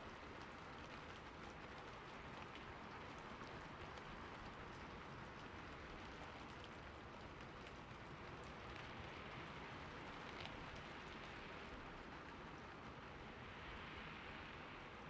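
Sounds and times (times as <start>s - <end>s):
rain falling on a roof: 0.0s - 15.0s.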